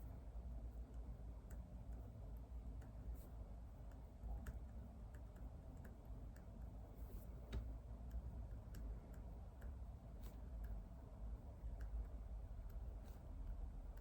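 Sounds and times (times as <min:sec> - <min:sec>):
low room rumble: 0:00.0 - 0:14.0
faint desk clicks and taps: 0:07.4 - 0:10.8.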